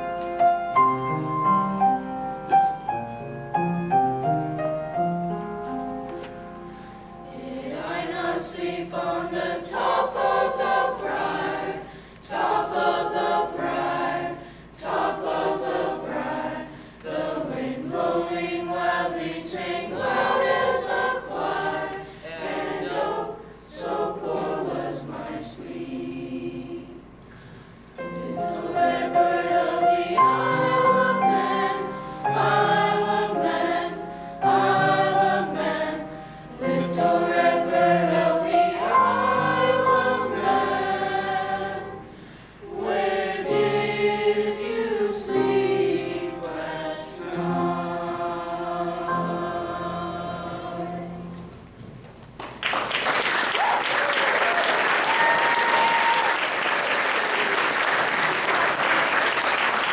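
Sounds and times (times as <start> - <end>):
choir singing a slow lullaby: 5.2 - 51.8.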